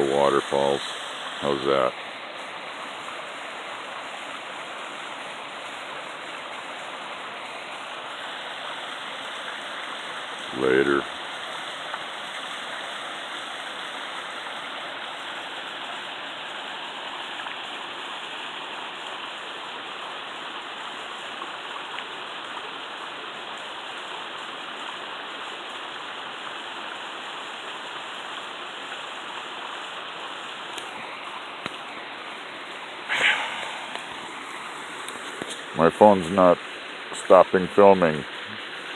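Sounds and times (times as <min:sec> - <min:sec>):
waterfall rushing: 0:00.0 - 0:17.1, 0:30.8 - 0:38.9.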